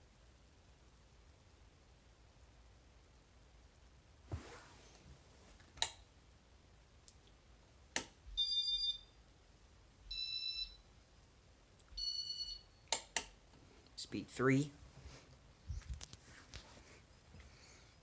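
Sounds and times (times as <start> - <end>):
sharp switch clicks: 8.0 - 8.2, 12.9 - 13.4.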